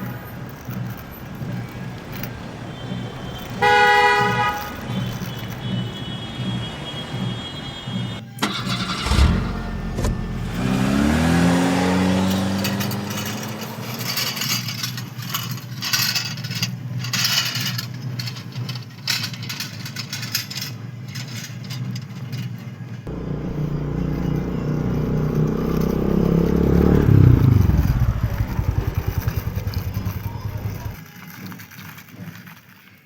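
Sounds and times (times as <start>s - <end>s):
vehicle engine: 0.0s - 15.6s, 23.1s - 31.0s
scraping and clattering: 9.9s - 31.0s.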